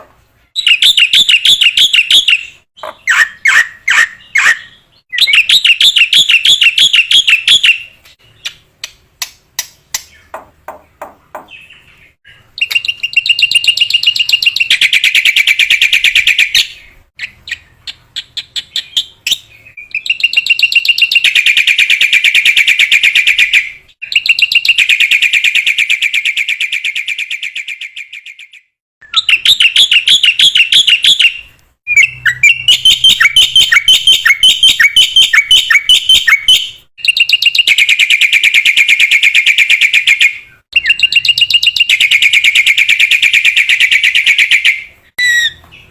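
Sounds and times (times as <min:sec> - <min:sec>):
sharp bird chips: 0:11.4 - 0:25.8.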